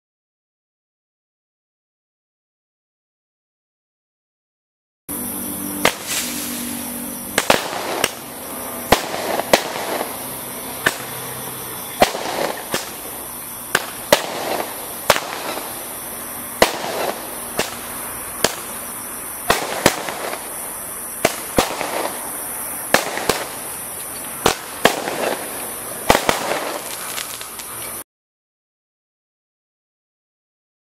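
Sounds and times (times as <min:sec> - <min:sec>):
fireworks hiss: 0:05.1 - 0:28.0
fireworks bangs: 0:05.8 - 0:28.0.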